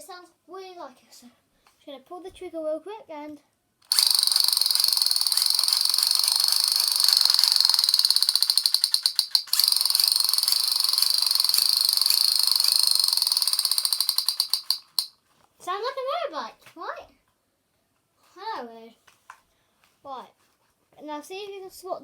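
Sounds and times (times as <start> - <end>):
toy gun buzzing rattle: 3.8 - 15.2.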